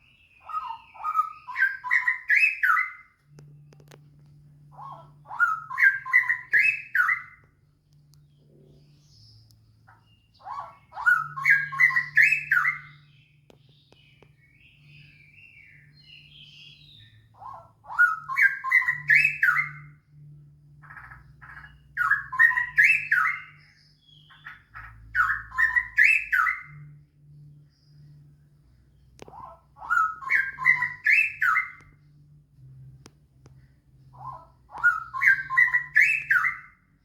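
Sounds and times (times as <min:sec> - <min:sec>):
bird singing bubbling phrases: 0:00.0 - 0:03.2, 0:04.6 - 0:07.6, 0:08.3 - 0:20.1, 0:20.8 - 0:27.0, 0:29.2 - 0:32.0, 0:34.1 - 0:37.0
soft bird chattering calls: 0:00.4 - 0:03.2.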